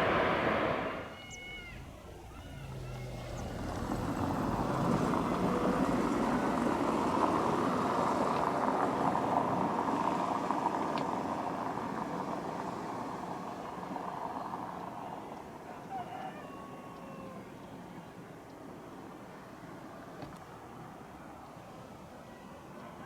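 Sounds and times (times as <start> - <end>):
jet engines rushing: 0.0 - 15.6.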